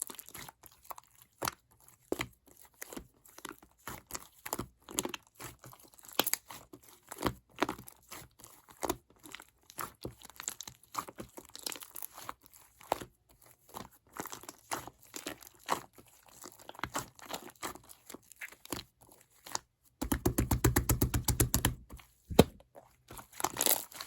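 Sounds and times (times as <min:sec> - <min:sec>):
slime squished by hand: 0:20.0 - 0:22.6.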